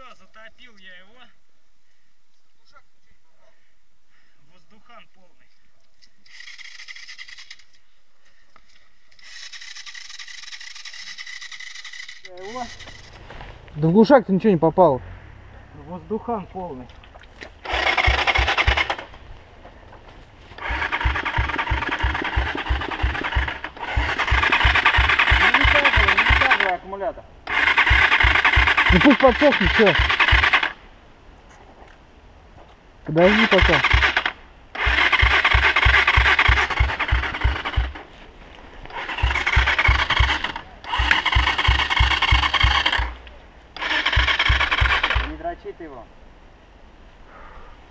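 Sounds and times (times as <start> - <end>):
electric starter cranking engine: 17.6 - 19.2, 20.6 - 26.8, 27.4 - 30.8, 33.2 - 38.1, 38.9 - 43.2, 43.8 - 45.3.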